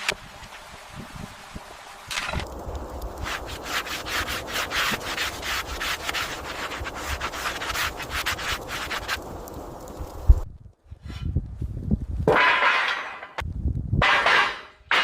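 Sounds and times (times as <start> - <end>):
rapid rubbing strokes: 3.1 - 9.6.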